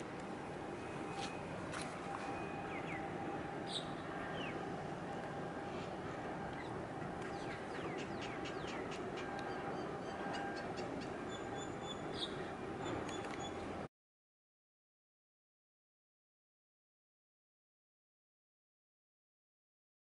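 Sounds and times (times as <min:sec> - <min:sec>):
outdoor background rumble: 0:00.0 - 0:13.9
small birds chirping: 0:02.5 - 0:04.6, 0:06.6 - 0:13.6.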